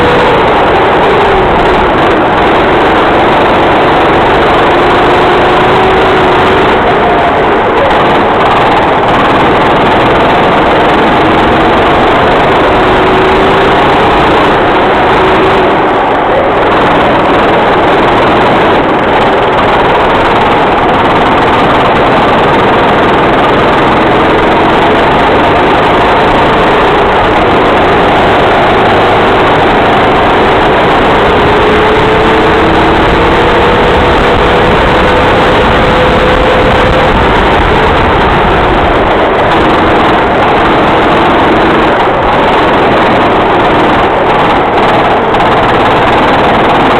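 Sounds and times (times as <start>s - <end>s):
kart engine running hard: 0.0s - 46.9s.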